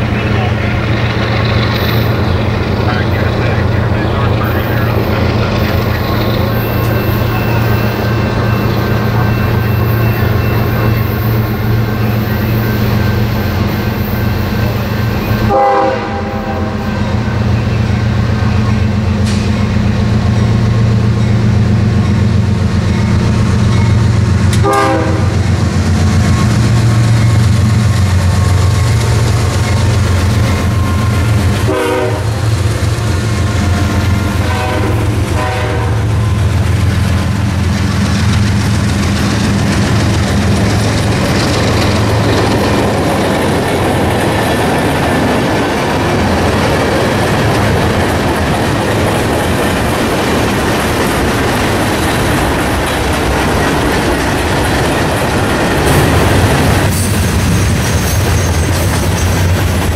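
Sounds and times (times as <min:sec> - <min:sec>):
diesel locomotive engines droning: 0:00.0 - 0:59.9
train horn blasts: 0:15.4 - 0:17.4, 0:24.5 - 0:25.5, 0:31.6 - 0:32.6, 0:34.2 - 0:36.5.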